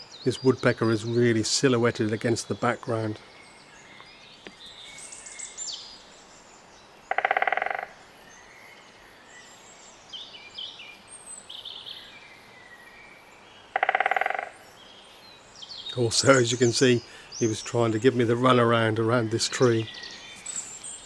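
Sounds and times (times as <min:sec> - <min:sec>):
songbirds chirping: 0:00.0 - 0:21.0
woodpecker drumming: 0:07.1 - 0:08.0, 0:13.7 - 0:14.7, 0:15.8 - 0:21.0.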